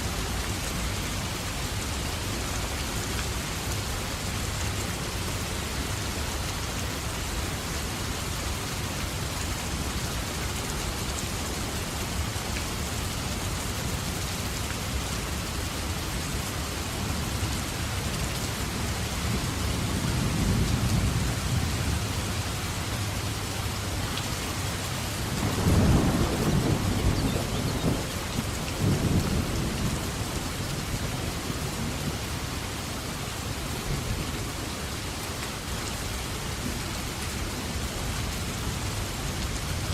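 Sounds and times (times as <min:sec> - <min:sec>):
heavy rain falling: 0:00.0 - 0:39.9
thunder rumbling: 0:25.0 - 0:30.6.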